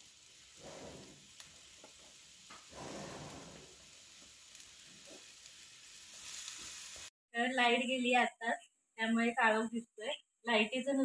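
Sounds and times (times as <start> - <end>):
mushrooms sizzling in oil: 0.0 - 7.1.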